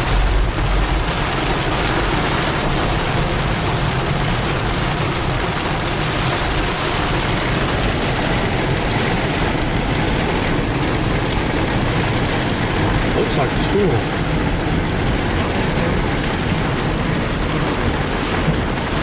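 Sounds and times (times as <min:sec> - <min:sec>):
rain on car: 0:00.0 - 0:19.0
tyres on wet road: 0:00.0 - 0:19.0.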